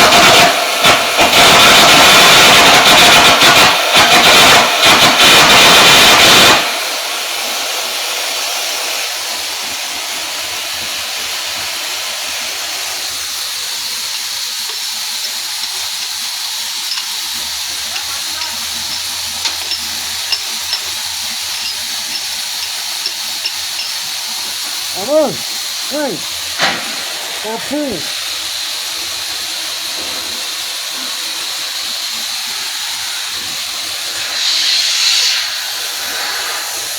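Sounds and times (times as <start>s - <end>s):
welding arc hissing and crackling: 0.0s - 36.9s
loud harsh noise: 16.7s - 28.9s.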